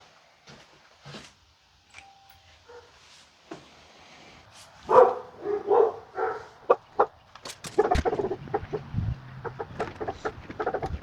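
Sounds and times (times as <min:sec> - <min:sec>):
dog barking: 0:02.6 - 0:03.0, 0:04.8 - 0:07.1.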